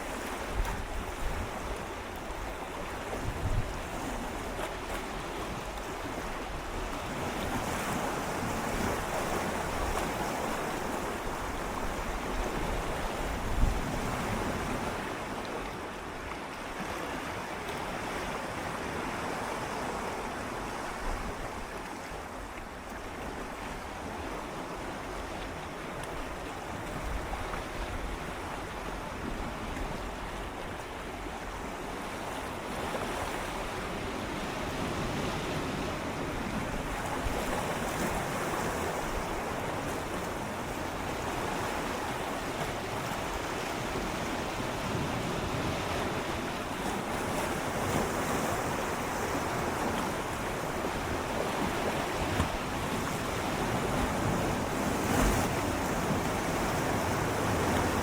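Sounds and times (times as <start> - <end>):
wind on microphone: 0.0 - 4.4
waves lapping against rocks: 0.0 - 58.0.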